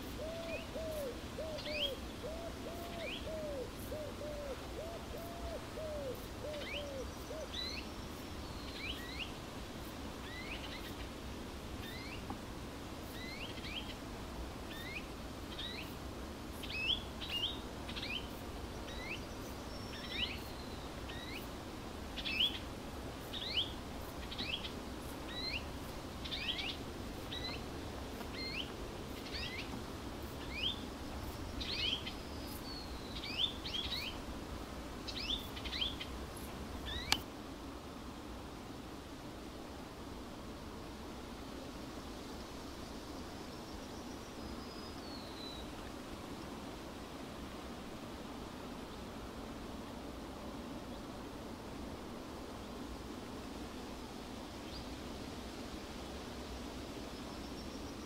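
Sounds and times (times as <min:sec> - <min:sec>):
background hiss: 0:00.0 - 0:58.0
low hoots: 0:00.2 - 0:07.6.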